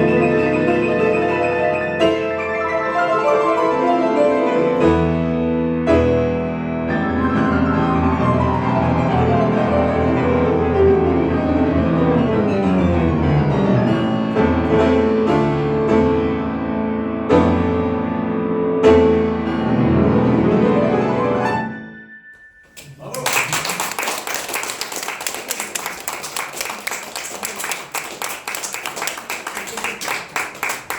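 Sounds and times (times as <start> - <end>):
solo piano: 0.0 - 22.8.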